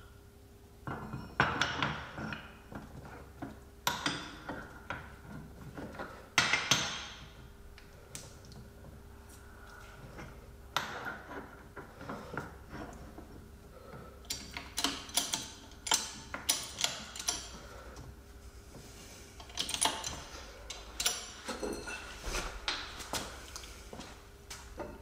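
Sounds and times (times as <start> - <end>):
metal tools clinking: 19.4 - 22.2.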